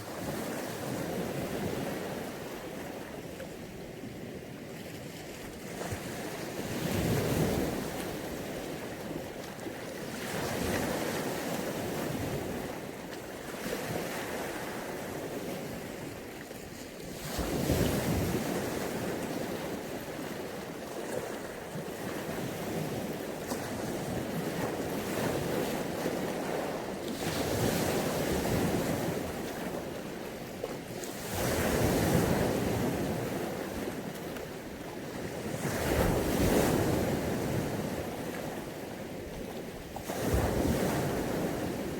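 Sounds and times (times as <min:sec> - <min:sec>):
sea waves breaking on beach: 0:00.0 - 0:41.9
wind on microphone: 0:17.1 - 0:30.3, 0:30.9 - 0:41.9.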